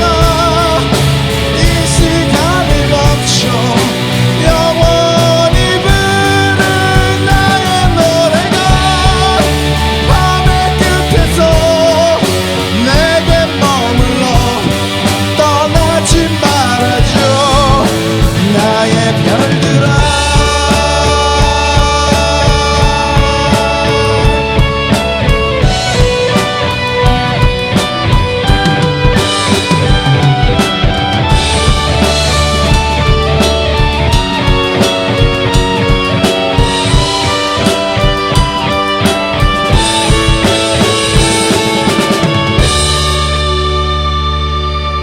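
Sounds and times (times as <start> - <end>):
bending lead guitar melody: 0.0 - 45.0
rock band playing live: 0.0 - 45.0.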